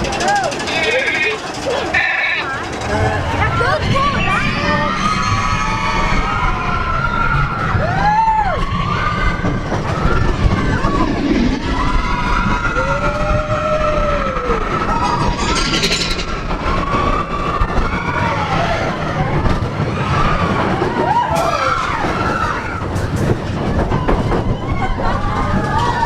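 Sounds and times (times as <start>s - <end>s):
wavering squeals: 0.0s - 7.5s, 8.8s - 19.1s
roller coaster cars rumbling on rails: 0.0s - 26.0s.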